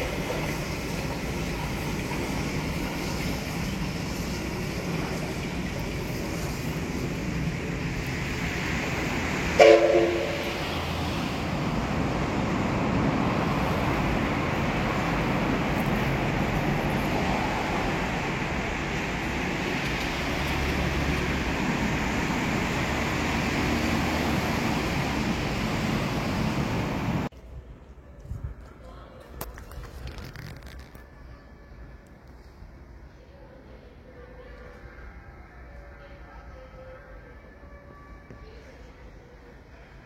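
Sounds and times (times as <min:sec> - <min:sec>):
electric train rumbling: 0:00.0 - 0:27.7
train horn blast: 0:09.5 - 0:11.0.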